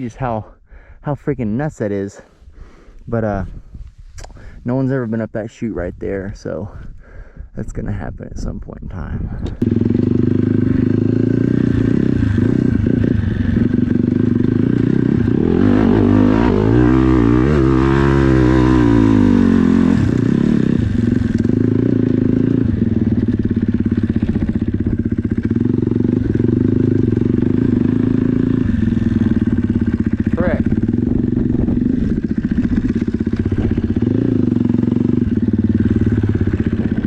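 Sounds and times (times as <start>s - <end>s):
dirt bike engine idling: 9.5s - 37.0s.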